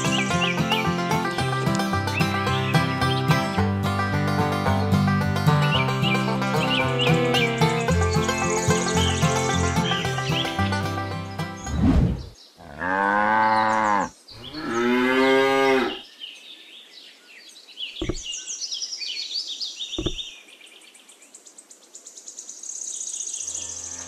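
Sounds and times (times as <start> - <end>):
cow mooing: 12.6 - 16.0.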